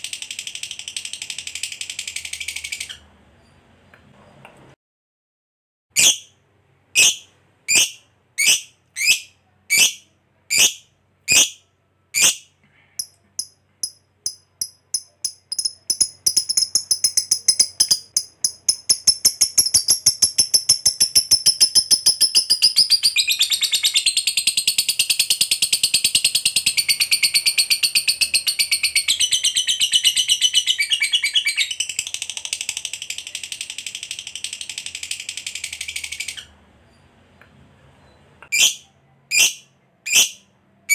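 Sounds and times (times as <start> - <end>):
lovebird chattering trill: 6.0 - 6.3, 7.0 - 11.6, 12.2 - 32.3, 38.5 - 40.4.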